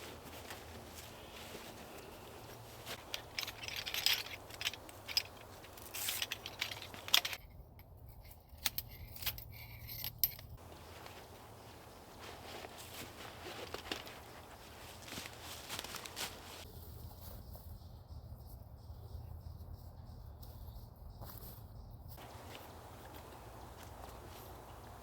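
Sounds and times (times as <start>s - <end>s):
rustling: 0.0s - 7.4s, 9.6s - 17.6s, 22.2s - 25.0s
light metallic clinks: 0.0s - 25.0s.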